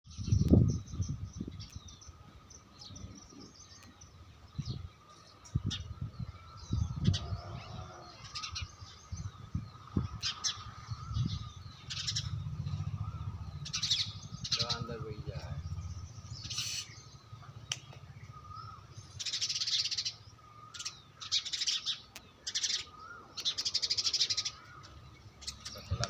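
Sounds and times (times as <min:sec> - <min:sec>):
small birds chirping: 0:00.1 - 0:26.0.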